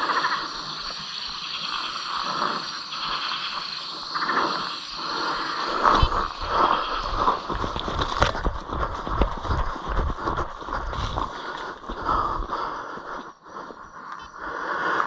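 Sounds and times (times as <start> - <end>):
footsteps in mud: 5.7 - 13.3
cane rustling: 5.8 - 12.7.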